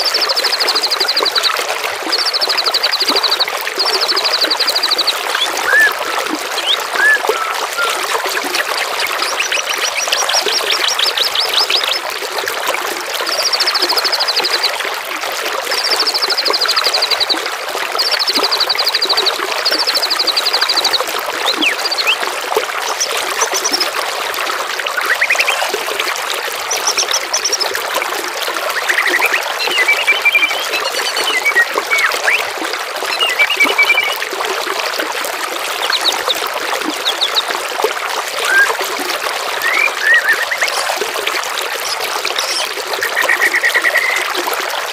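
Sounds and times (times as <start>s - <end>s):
water trickling: 0.0s - 44.9s
songbirds singing: 2.1s - 12.1s, 18.0s - 22.3s, 25.0s - 25.7s, 28.7s - 32.5s, 33.1s - 34.2s, 37.0s - 37.6s, 39.6s - 41.0s, 41.8s - 44.3s.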